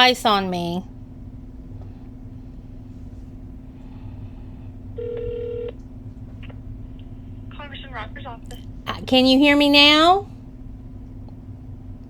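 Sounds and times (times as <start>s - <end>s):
low hum on phone line: 0.0s - 12.0s.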